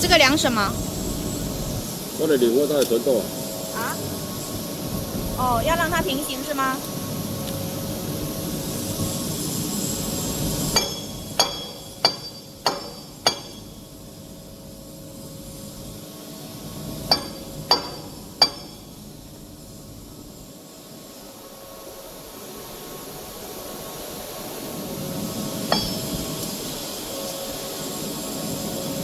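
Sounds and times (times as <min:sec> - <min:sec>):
steady running noise: 0:00.0 - 0:21.7, 0:23.1 - 0:29.0
hammer striking metal: 0:10.7 - 0:14.0, 0:17.1 - 0:19.0, 0:25.7 - 0:26.6.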